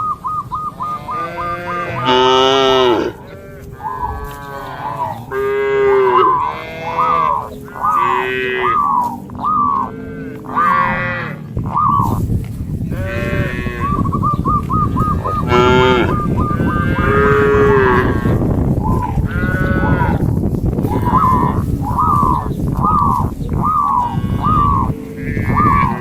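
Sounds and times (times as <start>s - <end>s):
cattle mooing: 0.8s - 12.2s, 12.9s - 22.5s, 23.8s - 26.0s
steady rushing noise: 6.3s - 26.0s.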